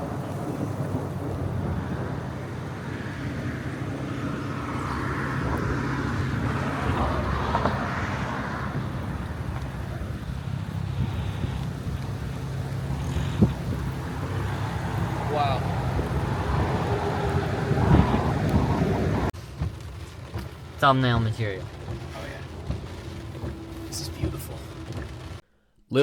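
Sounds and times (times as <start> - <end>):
vehicle passing by: 0.3 - 19.3
vehicle engine idling: 1.4 - 25.5.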